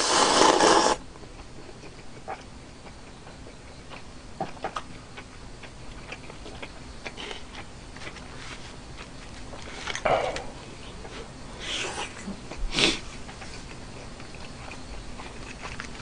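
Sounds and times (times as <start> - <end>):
chewing food: 0.4 - 11.2, 11.9 - 16.0.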